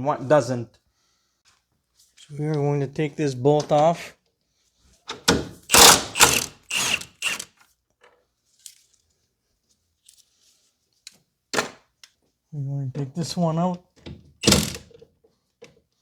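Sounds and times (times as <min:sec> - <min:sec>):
ratchet wrench clicking: 0:05.7 - 0:07.5.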